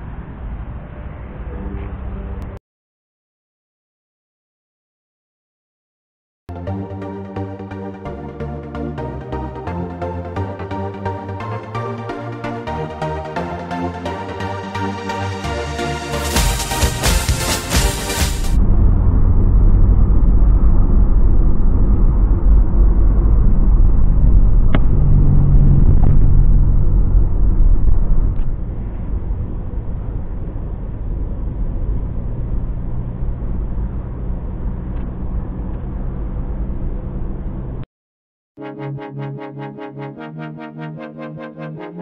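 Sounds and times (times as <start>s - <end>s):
car road and engine noise: 0.0s - 2.6s, 6.8s - 37.9s
electronic music: 6.5s - 18.6s, 38.6s - 42.0s.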